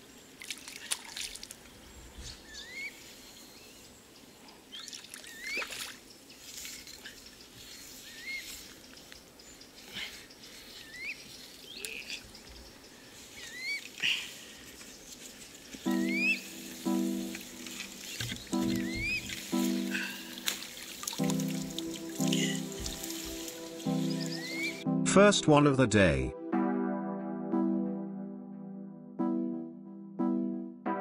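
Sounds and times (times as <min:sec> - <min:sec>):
water splashing and trickling: 0:00.1 - 0:01.9, 0:04.7 - 0:08.0, 0:15.8 - 0:24.8
bird rising chirp: 0:07.2 - 0:13.9, 0:15.8 - 0:20.4, 0:21.2 - 0:24.9.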